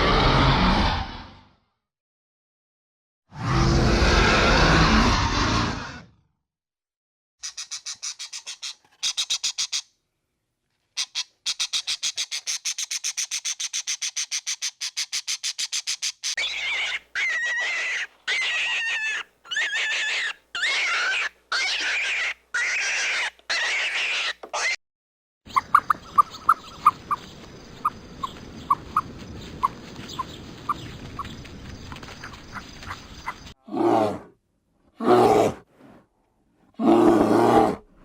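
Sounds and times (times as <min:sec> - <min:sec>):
animal wavering calls: 0:16.4 - 0:24.8.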